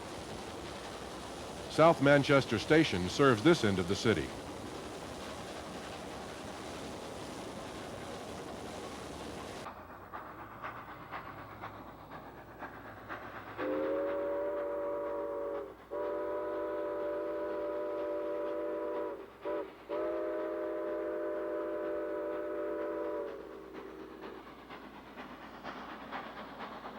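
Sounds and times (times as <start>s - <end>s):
steady rushing noise: 0.0s - 9.7s
steam locomotive whistle: 13.6s - 23.9s.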